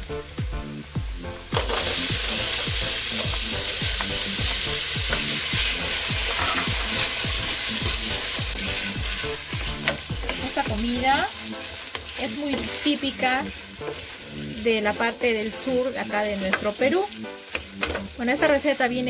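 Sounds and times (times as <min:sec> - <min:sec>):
beans sizzling in hot oil: 0:00.0 - 0:19.0.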